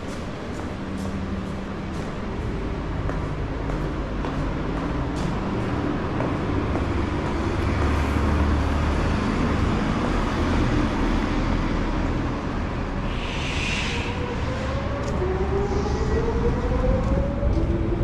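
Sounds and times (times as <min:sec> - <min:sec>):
road traffic rumble: 0:00.0 - 0:18.0
short hiss: 0:13.1 - 0:14.1.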